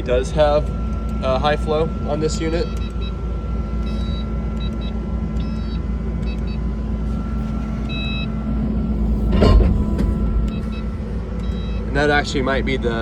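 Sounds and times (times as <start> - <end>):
skid steer diesel engine running: 6.3 - 13.0.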